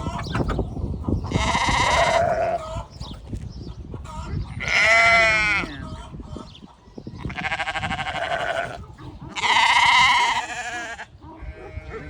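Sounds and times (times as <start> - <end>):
sheep bleating: 4.6 - 5.8, 7.3 - 8.8, 9.4 - 12.0.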